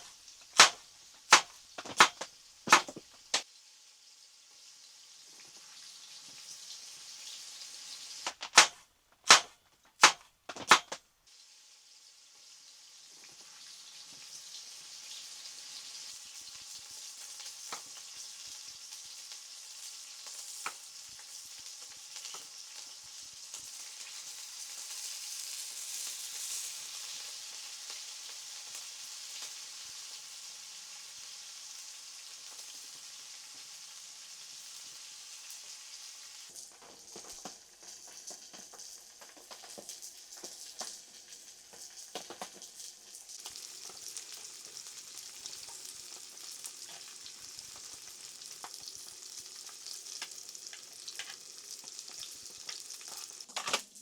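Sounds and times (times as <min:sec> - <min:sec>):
steady sizzling with crackles: 0:00.0 - 0:54.0
sharp clicks: 0:08.3 - 0:11.0.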